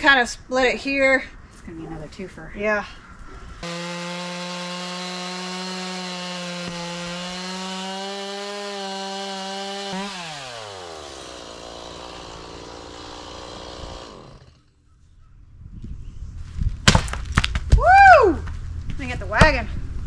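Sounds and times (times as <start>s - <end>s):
chainsaw cutting log: 3.6s - 14.7s.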